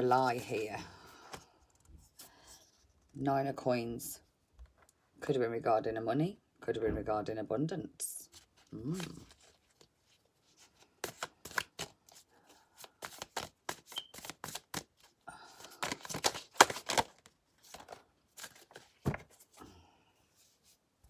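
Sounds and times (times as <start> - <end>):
cards shuffling and slapping: 10.6 - 19.6.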